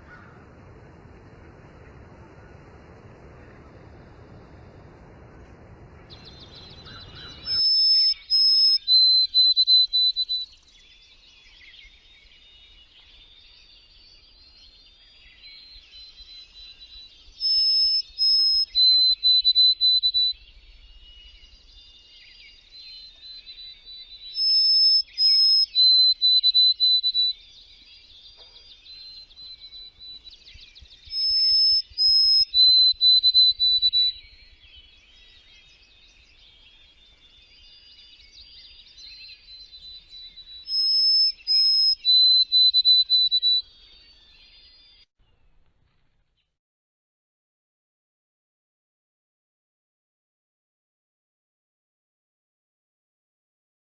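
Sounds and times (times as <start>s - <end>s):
quiet bird twittering: 1.8s - 46.5s
songbird whistled phrase: 6.1s - 12.8s, 15.1s - 45.0s.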